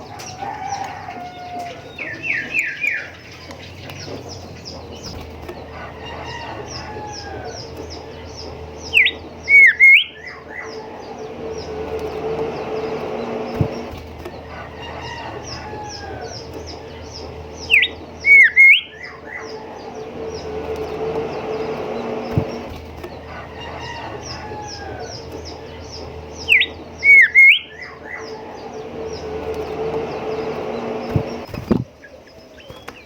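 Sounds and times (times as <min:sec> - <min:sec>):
steady low hum: 0:00.0 - 0:33.0
bird whistling phrase: 0:09.0 - 0:10.7, 0:17.7 - 0:19.6, 0:26.5 - 0:28.3.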